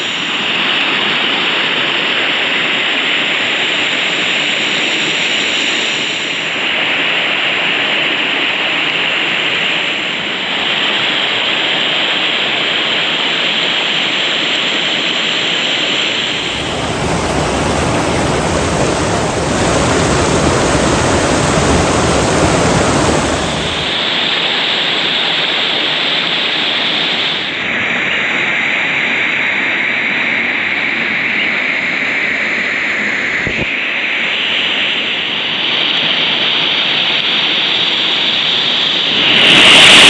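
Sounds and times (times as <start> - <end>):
waterfall rushing: 16.2 - 24.1.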